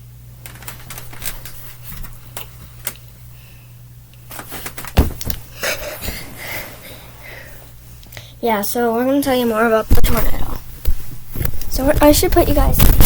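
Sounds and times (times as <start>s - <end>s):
steady low hum: 0.0s - 13.0s
heavy thump: 5.0s - 5.4s.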